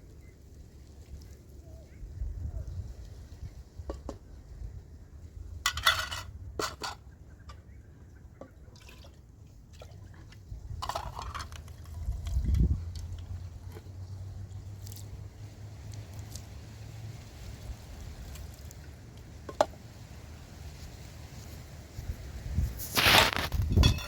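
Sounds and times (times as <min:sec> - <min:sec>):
liquid splashing or pouring: 0:08.7 - 0:12.4.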